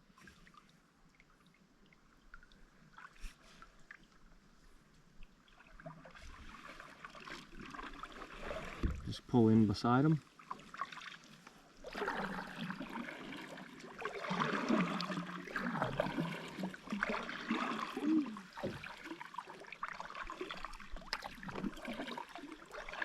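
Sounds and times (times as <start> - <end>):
paddle dipping and splashing: 0.0 - 23.0
water dripping off paddle: 10.4 - 23.0.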